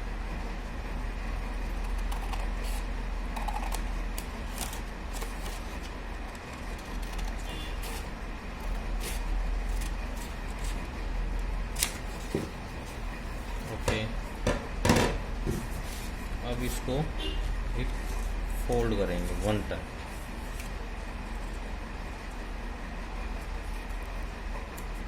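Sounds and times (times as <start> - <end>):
steady low hum: 0.0 - 25.0
paper rustling: 4.4 - 6.0.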